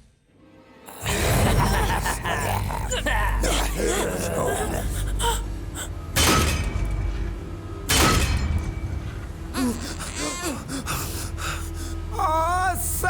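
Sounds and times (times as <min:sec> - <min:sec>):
voice-like gasps and groans: 0:00.9 - 0:06.0, 0:09.6 - 0:12.6
low steady hum: 0:01.1 - 0:13.0
heavy crashing impacts with ringing: 0:07.9 - 0:09.0.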